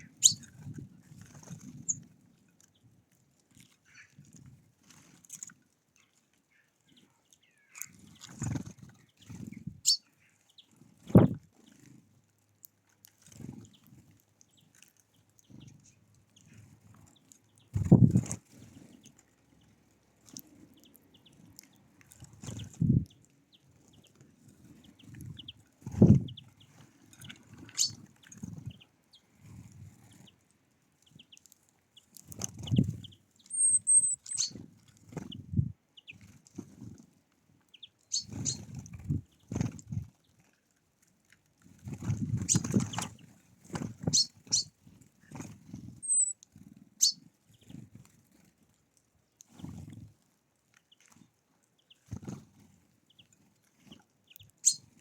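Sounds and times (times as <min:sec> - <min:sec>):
thin high bird call: 0:00.0 - 0:00.5, 0:27.7 - 0:28.0, 0:33.4 - 0:34.6, 0:44.1 - 0:44.7, 0:46.0 - 0:46.4, 0:54.6 - 0:54.8
small birds chirping: 0:00.0 - 0:02.1, 0:03.8 - 0:04.2, 0:06.0 - 0:11.9, 0:13.4 - 0:36.7, 0:37.7 - 0:40.4, 0:42.0 - 0:47.9, 0:50.8 - 0:55.0
low thuds or flutters: 0:17.8 - 0:18.2.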